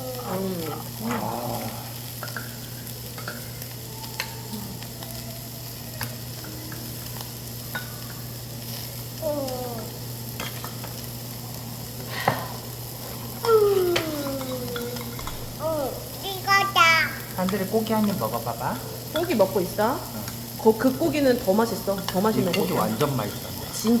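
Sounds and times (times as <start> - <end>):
child's voice: 0.0 - 1.2, 9.2 - 10.0, 13.4 - 17.4
meat sizzling on a grill: 0.0 - 24.0
steady hum: 7.2 - 22.5.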